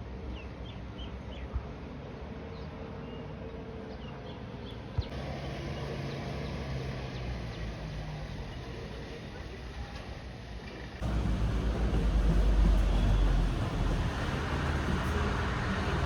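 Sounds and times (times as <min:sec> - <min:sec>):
steady low hum: 0:11.0 - 0:16.0.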